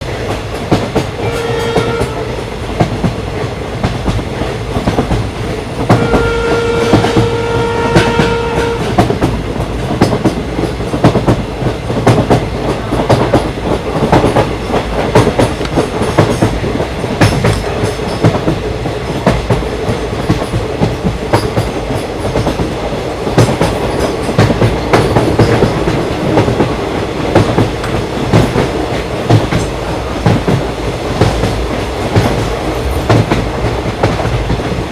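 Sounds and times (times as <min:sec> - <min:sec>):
train rumbling: 0:00.0 - 0:34.9
train horn blasts: 0:01.2 - 0:02.4, 0:05.9 - 0:09.0.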